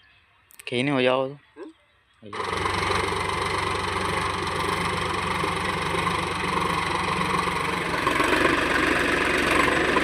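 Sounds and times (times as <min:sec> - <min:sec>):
tractor diesel engine running: 0:02.3 - 0:10.0.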